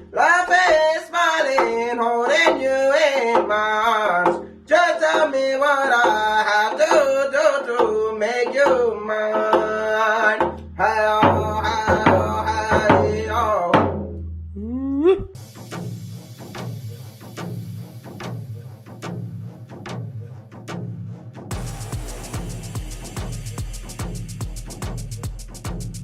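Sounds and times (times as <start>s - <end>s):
person singing: 0.1s - 13.9s
low drumbeat: 4.2s - 26.0s.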